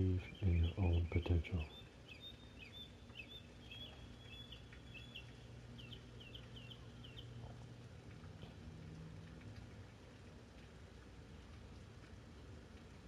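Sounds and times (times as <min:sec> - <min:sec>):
bird chirping: 0:00.0 - 0:07.4
low steady hum: 0:00.0 - 0:13.0.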